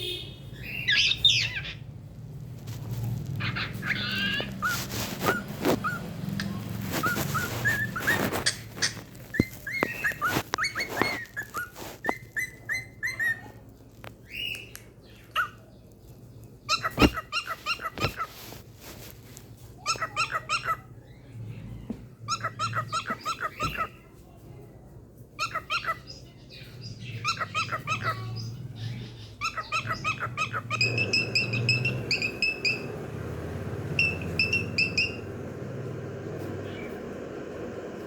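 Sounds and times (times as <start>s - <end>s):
cockatiel chirping and whistling: 0.6s - 1.8s, 3.4s - 13.6s, 29.4s - 33.1s, 33.9s - 35.5s.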